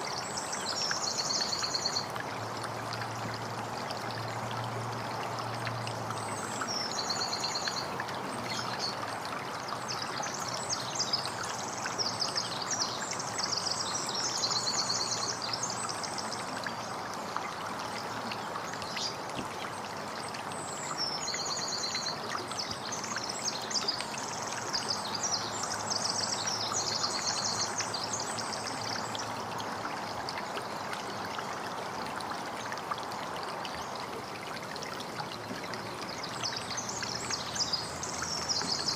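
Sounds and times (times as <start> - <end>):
trickling running water: 0.0 - 38.9
songbird singing: 35.4 - 38.9.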